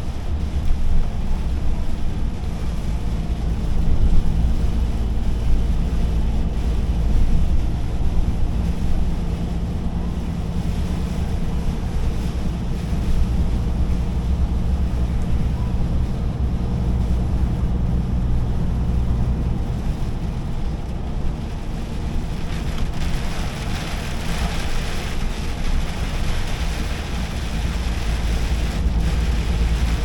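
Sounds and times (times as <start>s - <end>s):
diesel truck engine rumble: 0.0s - 30.0s
road noise: 0.0s - 30.0s.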